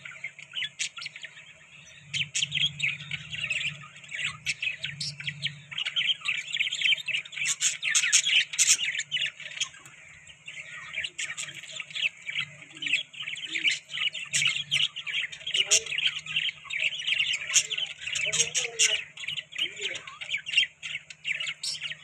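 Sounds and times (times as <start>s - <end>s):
budgerigars chirping and warbling: 0.0s - 22.0s.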